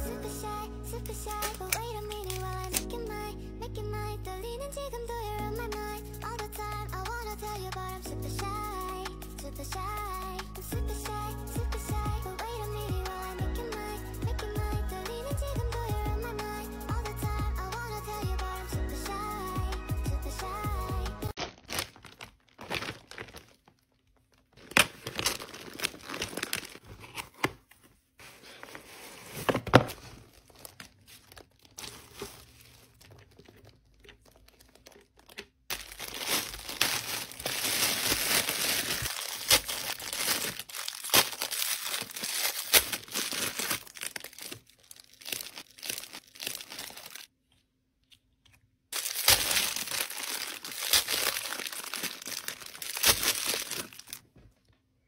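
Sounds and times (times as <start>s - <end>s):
plastic packaging crinkling and tearing: 1.0s - 3.0s, 21.3s - 27.7s, 28.3s - 47.3s, 48.9s - 54.3s.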